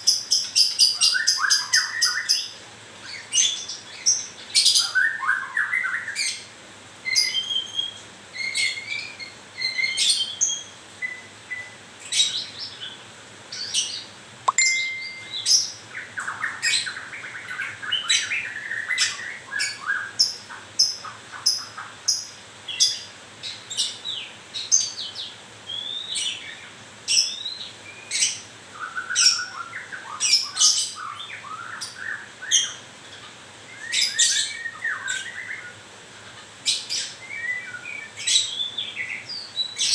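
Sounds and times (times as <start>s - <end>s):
bird singing chirps and whistles: 14.5s - 17.0s, 25.7s - 26.4s, 37.2s - 39.9s.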